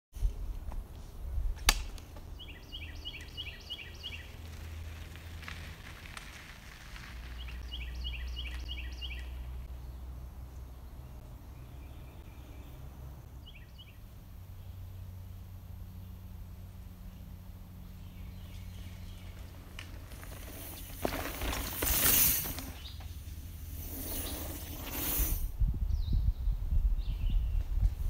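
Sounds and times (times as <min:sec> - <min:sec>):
songbird singing: 0:02.2 - 0:04.7, 0:07.2 - 0:21.8, 0:22.5 - 0:24.9, 0:25.8 - 0:28.0
wind rumble on microphone: 0:25.2 - 0:28.0.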